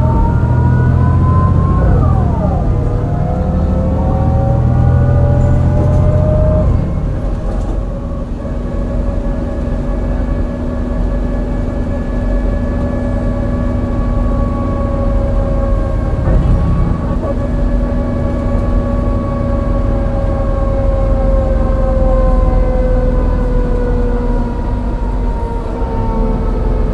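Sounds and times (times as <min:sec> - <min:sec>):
bus engine rumble misfiring: 0:00.0 - 0:26.9
automatic gearbox whine: 0:04.6 - 0:20.5.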